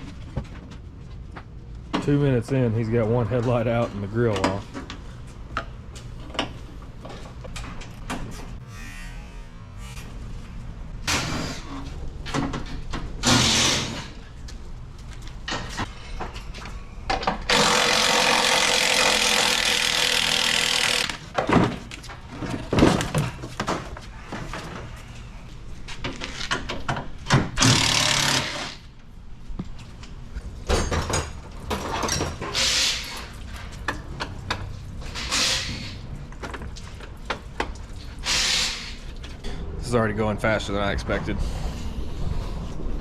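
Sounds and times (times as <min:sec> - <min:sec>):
short power tool bursts: 0:17.5 - 0:21.2, 0:27.6 - 0:28.8, 0:38.2 - 0:39.0.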